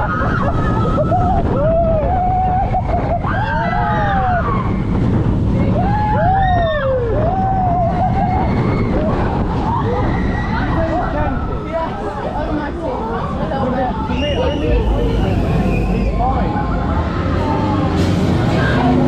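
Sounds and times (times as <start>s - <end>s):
riders screaming and whooping: 0.0s - 12.1s
roller coaster train rumble: 0.0s - 19.0s
wind rush: 0.0s - 19.0s.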